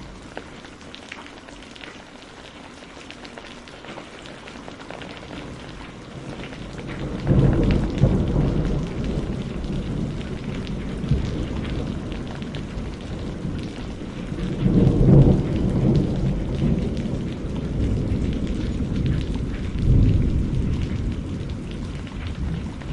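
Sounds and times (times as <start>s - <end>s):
rain on a greenhouse: 0.0s - 22.9s
thunder rumbling: 5.2s - 22.9s.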